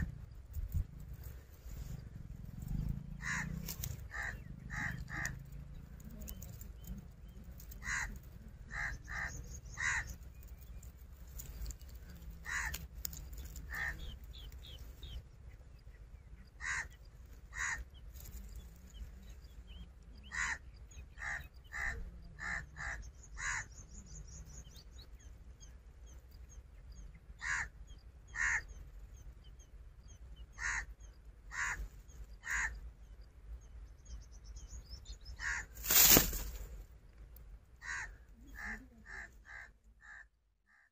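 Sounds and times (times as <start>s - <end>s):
bird calling harshly: 3.2s - 5.6s, 7.5s - 10.4s, 16.6s - 17.9s, 27.4s - 28.8s, 30.5s - 32.8s, 35.4s - 36.6s.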